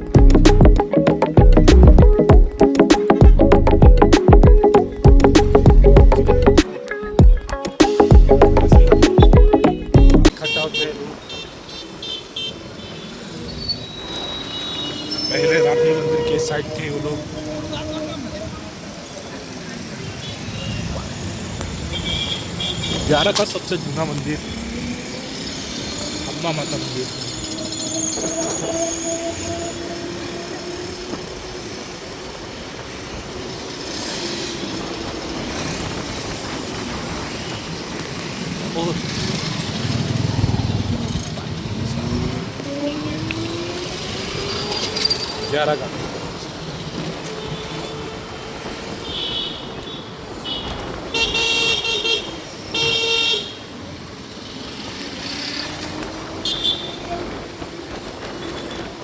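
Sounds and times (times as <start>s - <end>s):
road traffic noise: 0.0s - 59.0s
vehicle horn honking: 10.3s - 18.3s, 21.9s - 23.1s, 28.2s - 31.0s, 49.0s - 53.6s, 56.4s - 57.1s.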